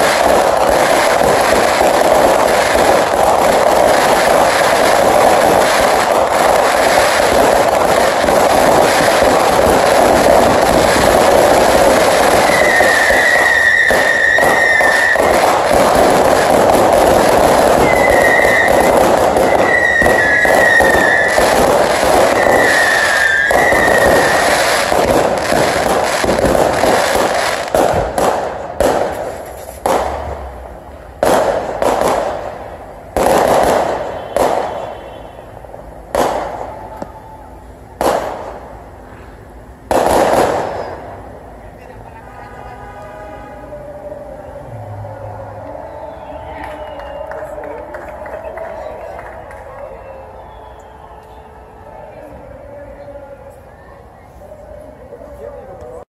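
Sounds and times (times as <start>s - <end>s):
firework whistles: 0.0s - 30.4s, 33.1s - 41.4s, 44.2s - 52.3s
loud firework bangs with echo: 0.0s - 37.3s, 38.0s - 39.1s, 39.8s - 41.3s
fireworks crackling and bursts: 0.0s - 56.0s.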